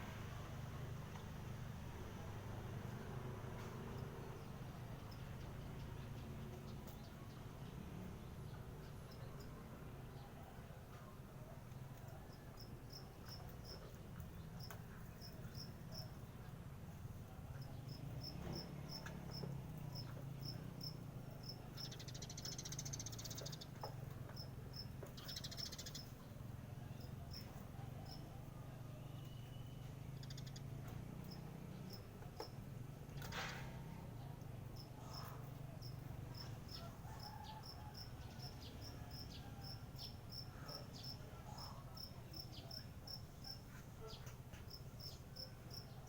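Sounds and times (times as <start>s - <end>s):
cricket chirping: 12.3s - 13.9s, 34.7s - 46.0s.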